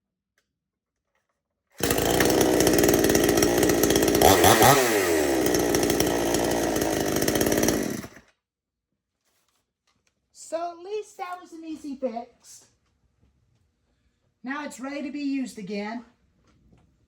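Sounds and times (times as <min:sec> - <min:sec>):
two-stroke chainsaw engine running: 0:01.8 - 0:08.2.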